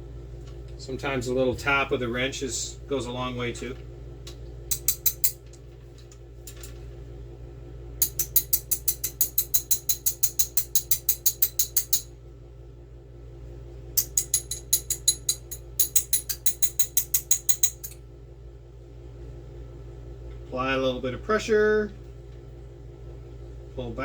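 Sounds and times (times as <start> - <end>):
steady low hum: 0.0 - 24.0
wrench tapping on brake: 4.7 - 5.4, 8.0 - 12.1, 14.0 - 18.0.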